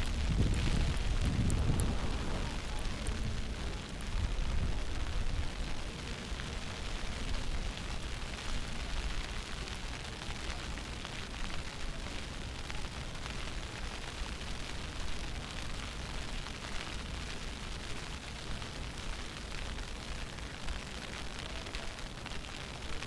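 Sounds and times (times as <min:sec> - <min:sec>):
wind buffeting microphone: 0:00.0 - 0:07.7.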